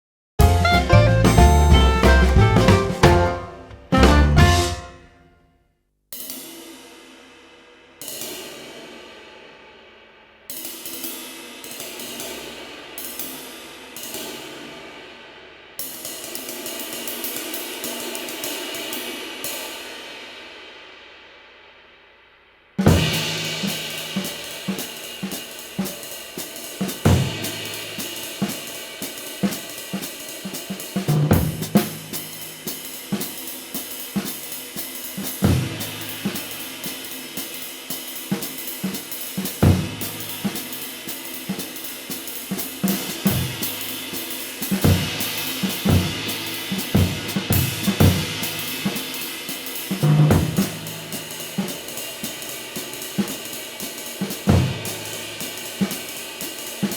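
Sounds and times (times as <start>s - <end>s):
snare drum: 0.4s - 5.2s, 22.8s - 56.9s.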